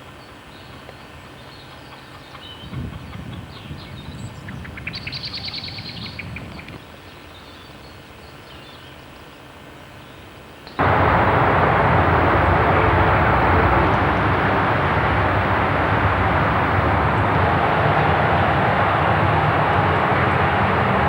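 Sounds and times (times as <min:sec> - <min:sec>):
loud steady rushing noise: 0:10.8 - 0:21.0
low rumble: 0:10.8 - 0:21.0.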